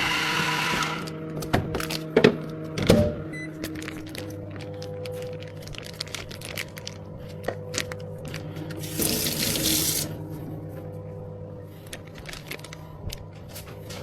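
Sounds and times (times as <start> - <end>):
steady low hum: 1.1 - 14.0
water tap running: 8.8 - 10.2.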